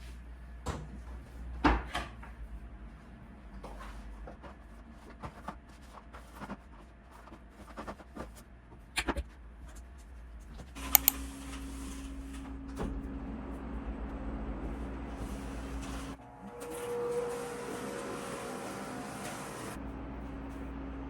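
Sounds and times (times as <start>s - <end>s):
objects being handled: 11.0s - 11.2s
sharp clicks: 11.0s - 11.2s.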